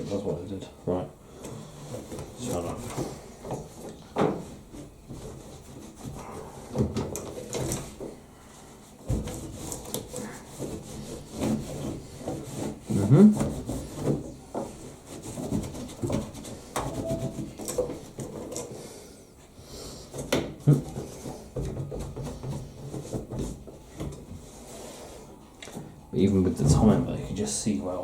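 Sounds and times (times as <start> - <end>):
sponge scrubbing plastic: 8.7 - 18.6.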